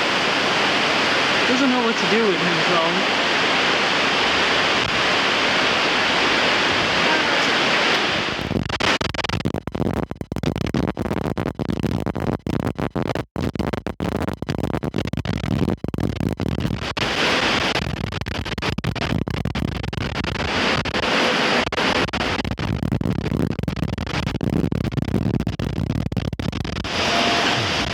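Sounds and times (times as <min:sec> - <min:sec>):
strong wind rushing: 0:02.6 - 0:08.6.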